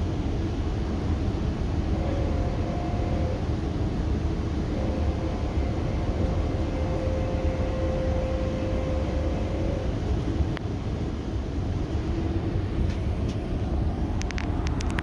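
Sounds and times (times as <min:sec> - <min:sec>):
steady whine: 0:00.0 - 0:15.0
train low rumble: 0:00.0 - 0:15.0.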